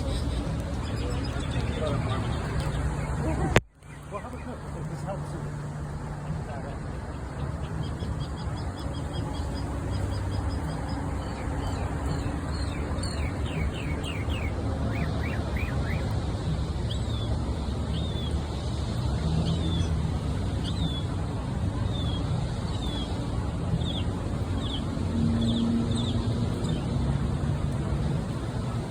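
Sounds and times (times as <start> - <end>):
city traffic rumble: 0.0 - 28.9
mockingbird singing: 7.1 - 16.1.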